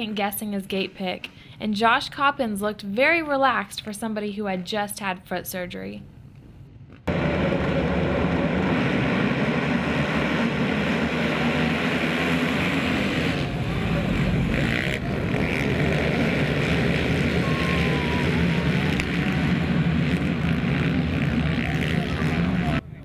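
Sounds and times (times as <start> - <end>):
motocross motorcycles racing: 7.1 - 22.8.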